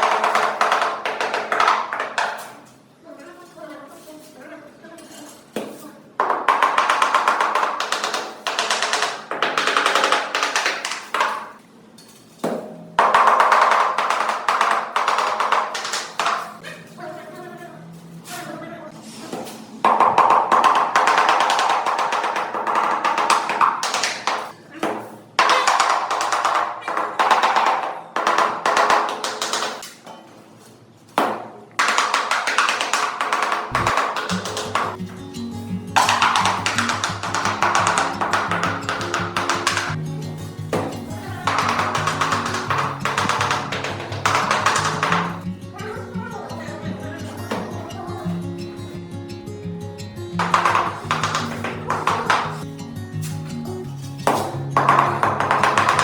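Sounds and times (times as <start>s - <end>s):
rapid dense tapping: 19.9s - 24.5s, 31.8s - 35.0s, 36.0s - 40.0s, 41.3s - 45.4s, 50.4s - 52.7s.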